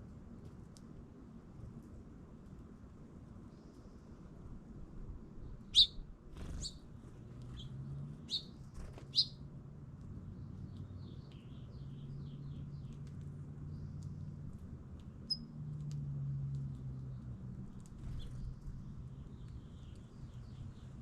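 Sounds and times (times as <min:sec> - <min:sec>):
songbirds chirping: 0:05.2 - 0:21.0
soft bird twittering: 0:05.4 - 0:09.4, 0:15.2 - 0:15.5, 0:18.0 - 0:18.6.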